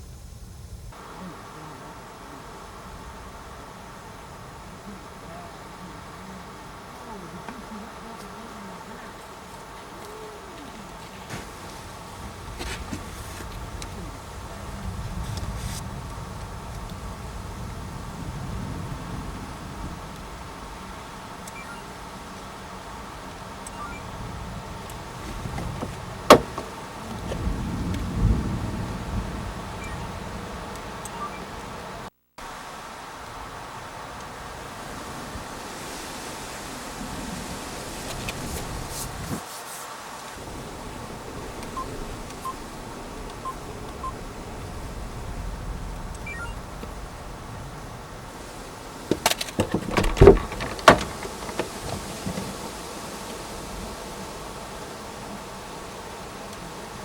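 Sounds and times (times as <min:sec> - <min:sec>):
short electronic beeps: 0:21.5 - 0:21.9, 0:23.7 - 0:24.1, 0:29.8 - 0:30.0, 0:31.1 - 0:31.5, 0:46.2 - 0:46.6.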